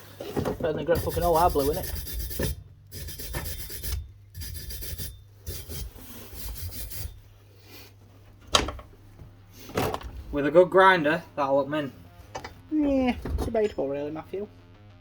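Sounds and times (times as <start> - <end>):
hand tool scraping metal: 0.9 - 7.3.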